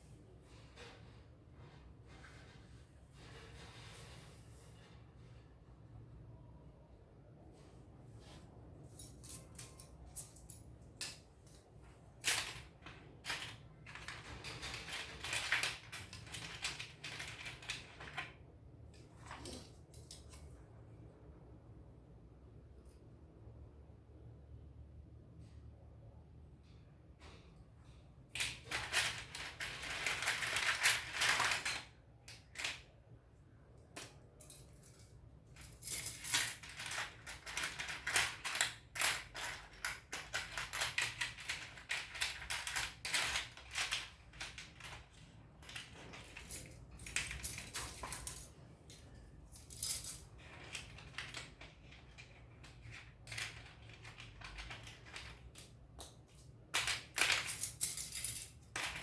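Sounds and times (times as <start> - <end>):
plastic parts clicking and clattering: 8.9 - 20.6, 27.2 - 33.0, 33.8 - 59.0.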